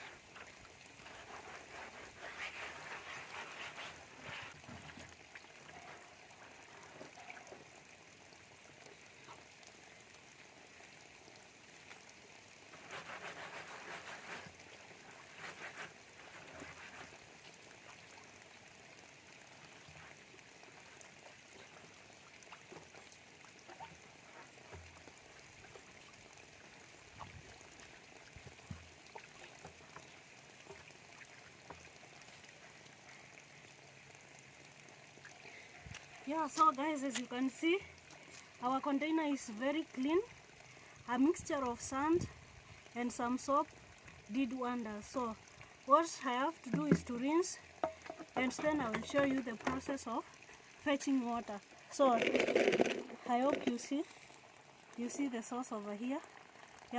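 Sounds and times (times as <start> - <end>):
water trickling: 0.0 - 56.9.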